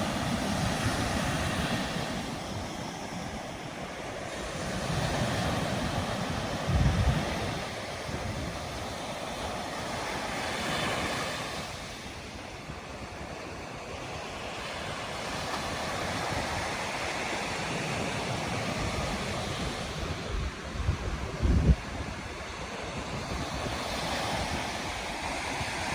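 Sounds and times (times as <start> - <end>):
waves breaking on beach: 0.0 - 25.9
wind buffeting microphone: 0.0 - 25.9.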